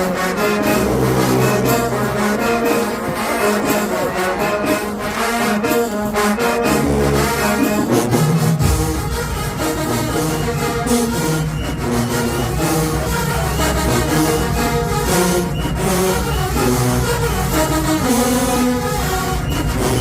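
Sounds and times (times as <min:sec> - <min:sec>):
low sousaphone notes: 0:00.0 - 0:20.0
marching band brass: 0:00.0 - 0:20.0
steady drum beat: 0:07.6 - 0:20.0.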